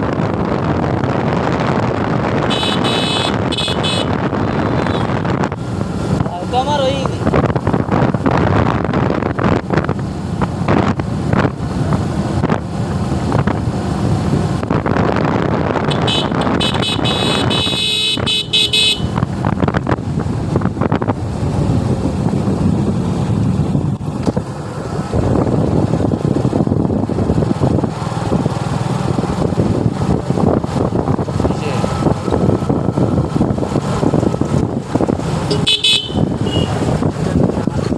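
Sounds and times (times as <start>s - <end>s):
wind on microphone: 0.0s - 18.4s, 19.0s - 37.9s
motorcycle engine riding: 0.0s - 37.9s
vehicle horn: 2.5s - 5.2s, 15.8s - 19.2s, 35.5s - 36.8s.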